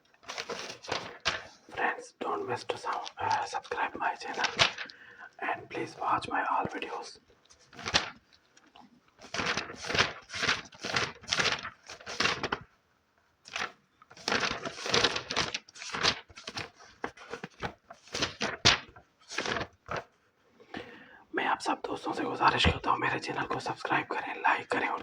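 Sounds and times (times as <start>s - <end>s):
book pages rustling: 0.0s - 12.8s, 13.4s - 20.9s, 21.9s - 25.0s.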